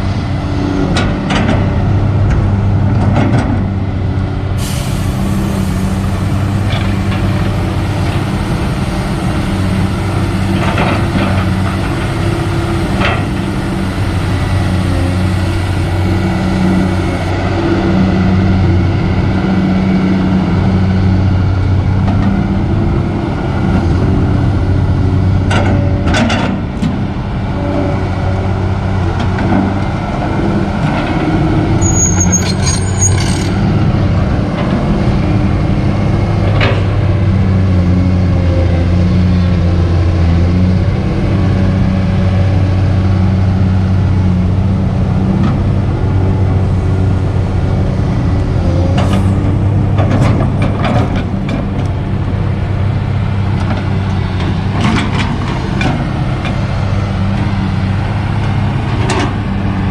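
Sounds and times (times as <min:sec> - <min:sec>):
excavator diesel engine running: 0:00.0 - 0:59.9
high squeal of machinery: 0:31.8 - 0:33.6.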